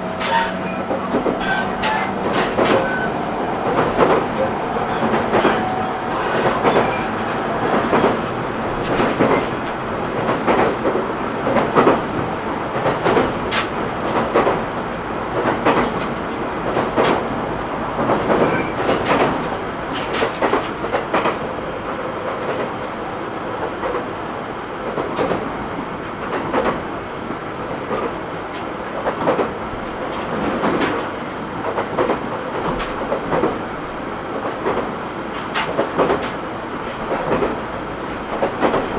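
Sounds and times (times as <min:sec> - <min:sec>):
train running rumble: 0:00.0 - 0:38.9
wheels clicking over rail joints: 0:00.1 - 0:12.0.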